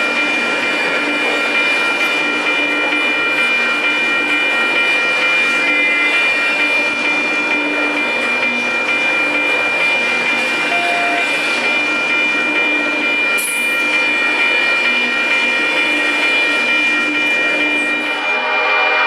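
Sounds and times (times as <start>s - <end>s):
high steady ringing: 0.0s - 18.5s
train wheels rumbling on rails: 0.0s - 19.0s.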